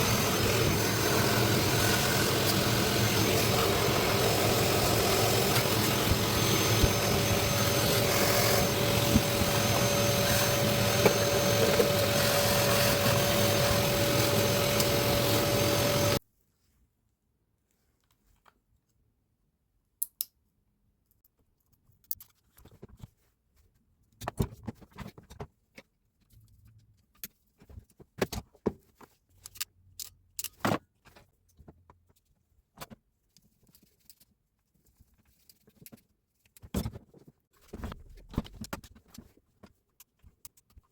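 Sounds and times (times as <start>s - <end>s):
hammer drill whining: 0.0s - 16.2s.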